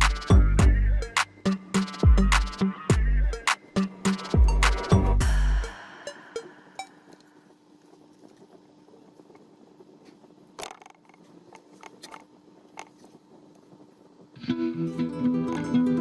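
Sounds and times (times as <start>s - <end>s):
music: 0.0s - 7.2s, 14.4s - 16.0s
faint steady hum: 0.0s - 16.0s.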